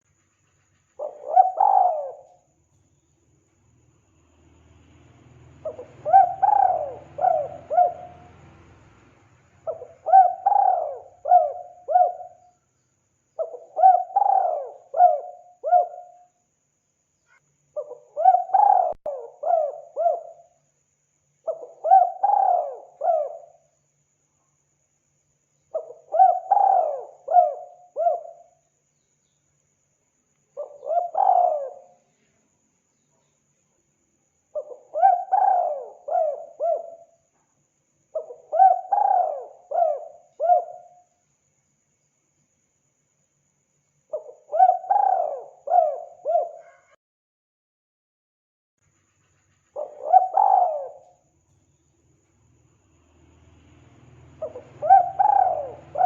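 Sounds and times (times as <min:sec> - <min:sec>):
dove cooing: 0:01.0 - 0:02.5, 0:05.6 - 0:08.5, 0:09.6 - 0:12.5, 0:13.4 - 0:16.3, 0:17.8 - 0:20.5, 0:21.5 - 0:23.6, 0:25.8 - 0:28.5, 0:30.6 - 0:32.0, 0:34.5 - 0:37.2, 0:38.2 - 0:41.1, 0:44.1 - 0:47.0, 0:49.8 - 0:51.2, 0:54.4 - 0:56.0.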